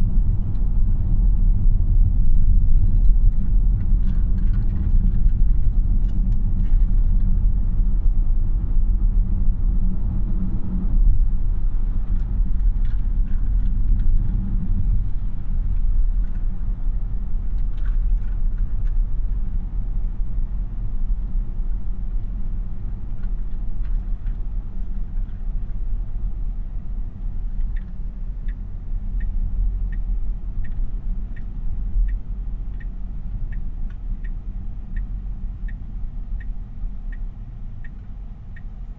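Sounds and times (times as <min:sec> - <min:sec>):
road and tyre rumble in car cabin: 0:00.0 - 0:38.9
turn signal ticking: 0:26.8 - 0:38.9.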